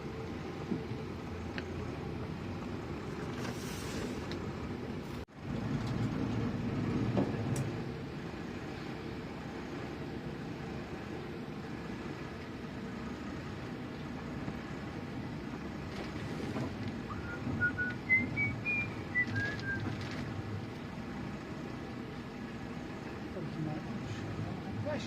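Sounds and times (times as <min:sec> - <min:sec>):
boat engine rumble: 0:00.0 - 0:25.0
person whistling: 0:17.1 - 0:19.9.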